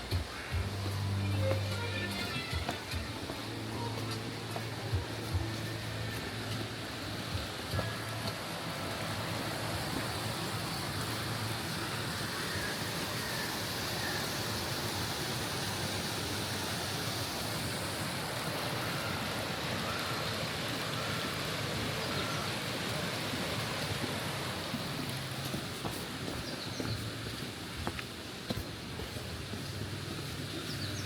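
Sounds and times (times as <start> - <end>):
mountain stream rushing: 0.0 - 31.0.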